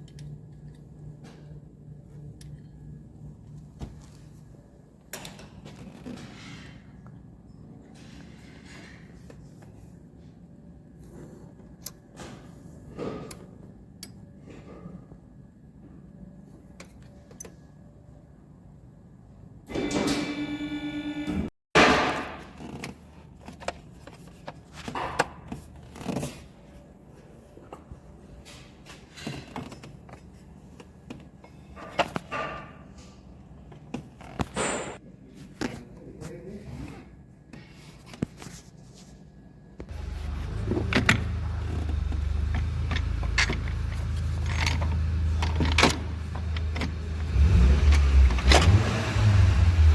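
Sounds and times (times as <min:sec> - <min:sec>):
tools and parts clicking: 0:00.0 - 0:01.0, 0:40.7 - 0:47.0.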